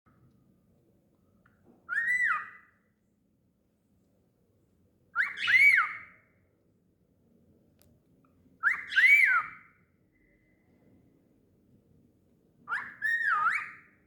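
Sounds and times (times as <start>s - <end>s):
cockatiel whistling: 1.9s - 2.7s, 5.2s - 6.1s, 8.6s - 9.6s, 12.7s - 13.9s.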